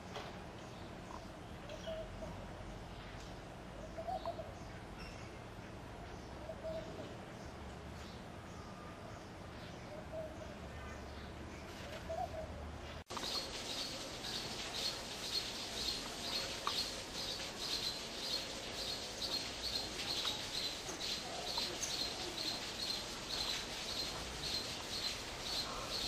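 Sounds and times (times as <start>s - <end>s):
bird chirping: 13.1s - 26.0s.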